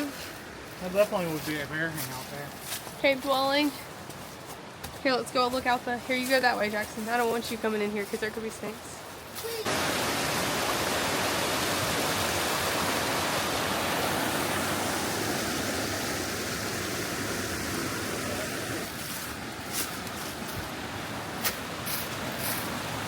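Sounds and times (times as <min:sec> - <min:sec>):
waterfall rushing: 0:09.4 - 0:23.0.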